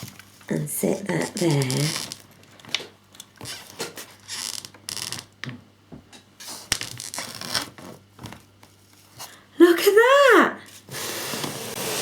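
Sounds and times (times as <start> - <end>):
objects rustling and scraping: 6.4 - 9.4.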